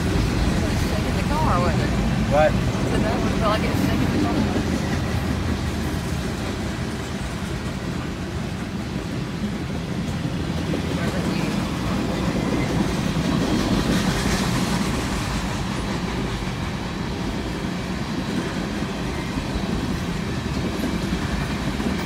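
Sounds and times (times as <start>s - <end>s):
train wheels rolling on rails: 0.0s - 22.0s.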